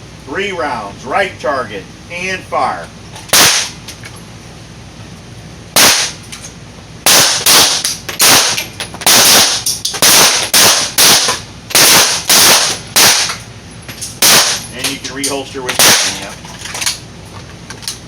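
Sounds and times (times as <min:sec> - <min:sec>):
pistol shots echoing: 0:03.3 - 0:03.8, 0:05.8 - 0:06.2, 0:07.1 - 0:13.4, 0:14.2 - 0:14.7, 0:15.7 - 0:16.3.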